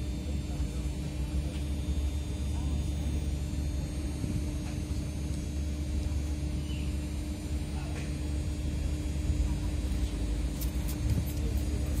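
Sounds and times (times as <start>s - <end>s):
faint voices of passengers: 0.0s - 12.0s
stationary train humming: 0.0s - 12.0s.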